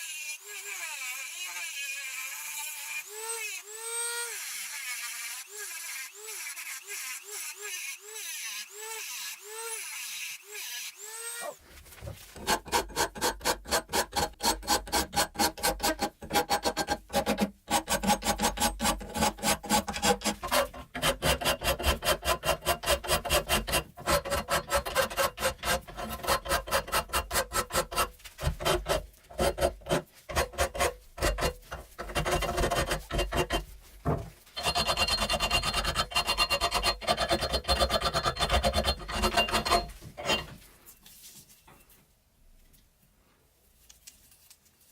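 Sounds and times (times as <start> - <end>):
hand file rasping on metal: 12.2 - 40.6.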